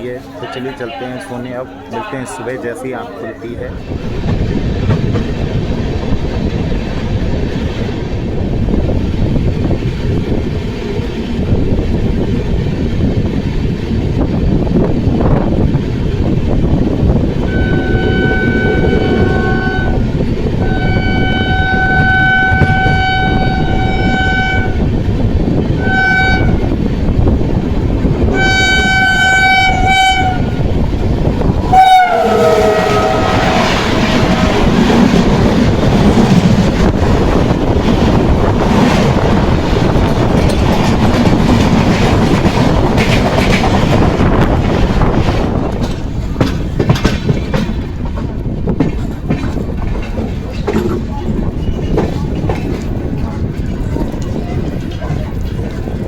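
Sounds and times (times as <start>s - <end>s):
moving train rumble: 0.0s - 56.0s
train horn blasts: 17.4s - 24.9s, 25.8s - 26.7s, 28.3s - 30.8s, 31.7s - 34.6s.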